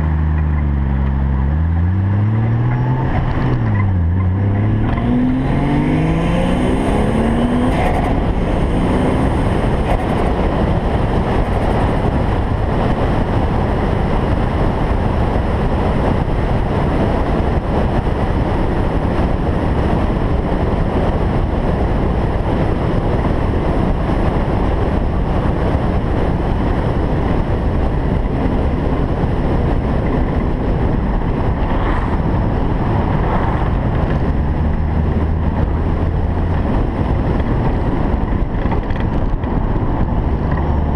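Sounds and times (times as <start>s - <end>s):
car engine revving: 0.0s - 13.4s, 30.2s - 40.9s
road and wind noise: 0.0s - 40.9s.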